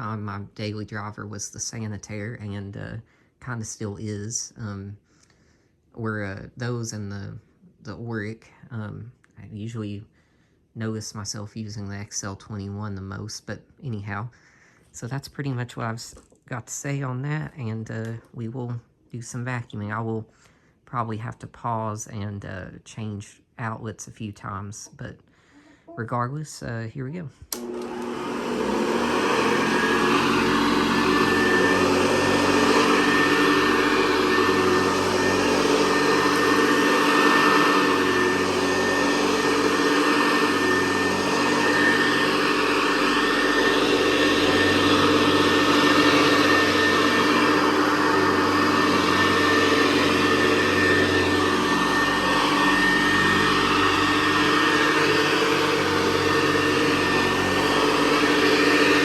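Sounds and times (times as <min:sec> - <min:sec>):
upright vacuum cleaner running: 0:27.5 - 0:59.0.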